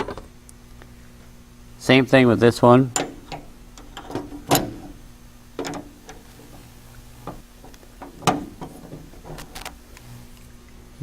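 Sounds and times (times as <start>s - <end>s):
faint steady hum: 0.0s - 11.0s
light metal clicks and knocks: 2.9s - 5.0s, 5.6s - 6.6s, 7.2s - 9.8s.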